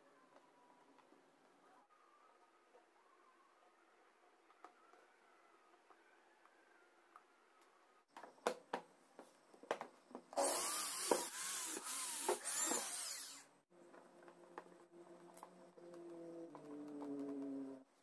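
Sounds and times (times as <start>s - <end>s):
handheld power tool running: 10.4s - 13.5s.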